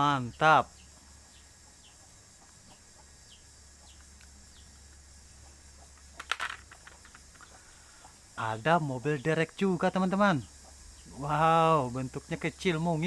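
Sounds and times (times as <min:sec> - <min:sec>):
birds chirping: 0:00.0 - 0:13.0
toys clattering: 0:06.1 - 0:07.6.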